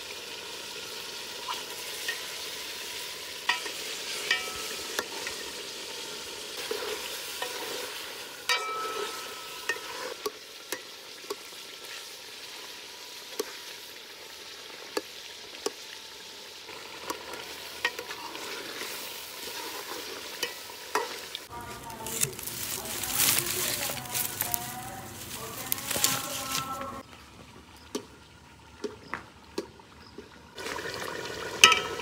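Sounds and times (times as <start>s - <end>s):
food sizzling in a pot: 0.0s - 27.1s, 30.6s - 32.0s
metal spoon clinking on pot: 3.5s - 5.4s, 8.5s - 9.9s.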